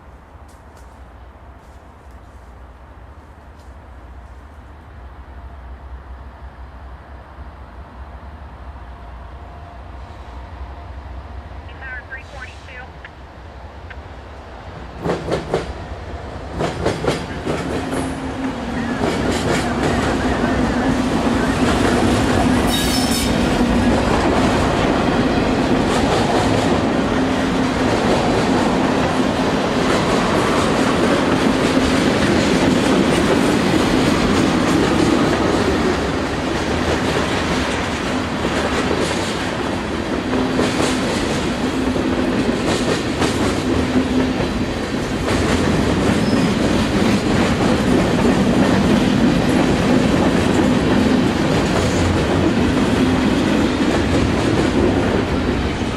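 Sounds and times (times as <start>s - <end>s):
freight train wheels clattering: 16.4s - 55.9s.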